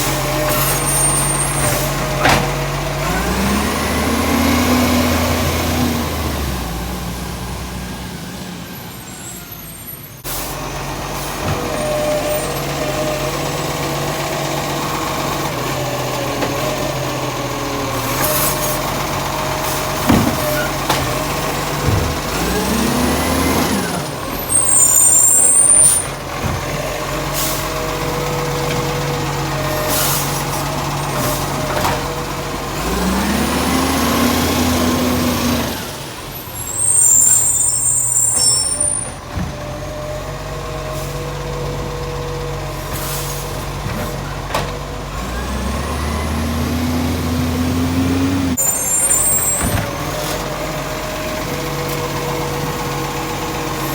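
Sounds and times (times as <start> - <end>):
garbage truck diesel engine: 0.0 - 53.9
air brake hisses: 42.9 - 43.6.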